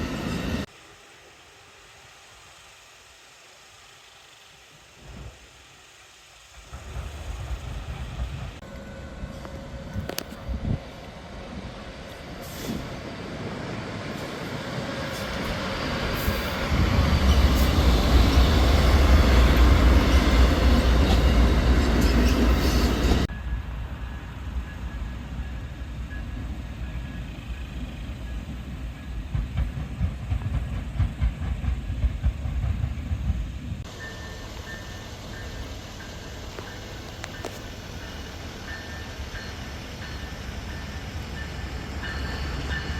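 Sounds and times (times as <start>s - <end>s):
train passing rumble: 0.0s - 42.9s
wheels knocking on rails: 29.1s - 33.9s.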